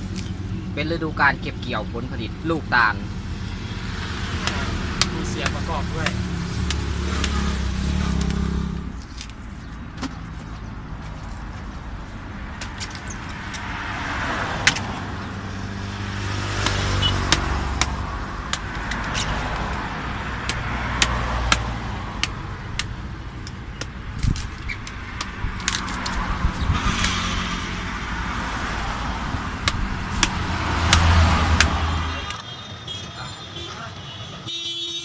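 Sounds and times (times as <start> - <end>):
motor vehicle running: 0.0 - 33.4
knife chopping fruit: 16.5 - 19.8.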